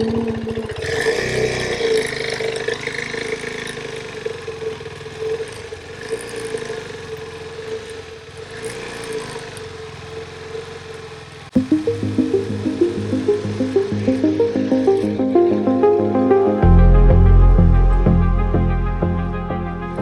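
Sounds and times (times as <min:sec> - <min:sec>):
background music: 0:11.6 - 0:20.0.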